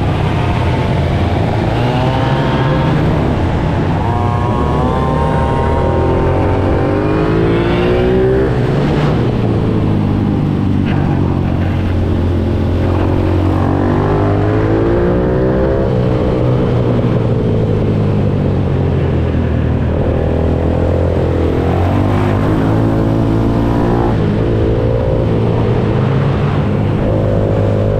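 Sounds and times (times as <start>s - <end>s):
motorbike engine revving: 0.0s - 17.2s.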